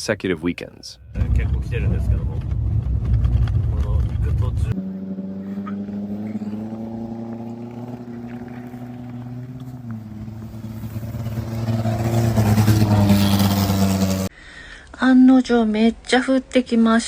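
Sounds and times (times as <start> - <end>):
road or wind noise: 1.0 - 14.3
vehicle engine humming: 1.1 - 14.3.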